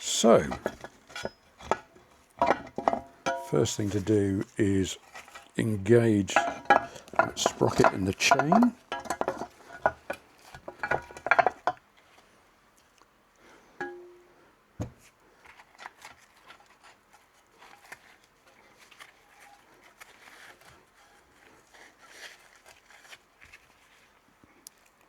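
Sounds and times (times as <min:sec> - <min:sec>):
metal parts clinking and rattling: 0:00.4 - 0:03.9, 0:06.2 - 0:11.7.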